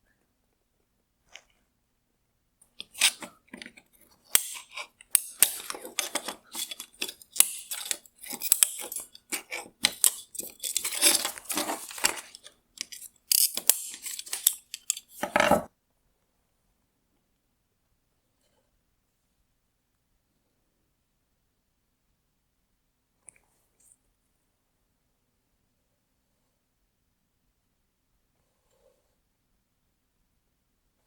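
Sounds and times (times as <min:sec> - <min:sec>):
hard plastic parts clicking and scraping: 0:02.8 - 0:15.7.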